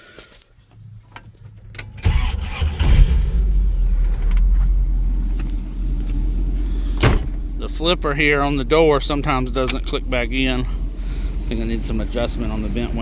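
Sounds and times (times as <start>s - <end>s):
car engine starting and idling: 0.2s - 13.0s.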